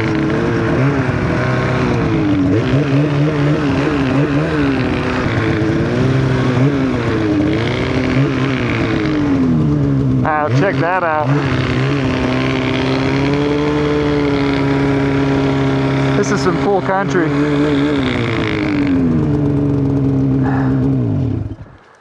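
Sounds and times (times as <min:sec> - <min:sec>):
snowmobile engine running: 0:00.0 - 0:22.0.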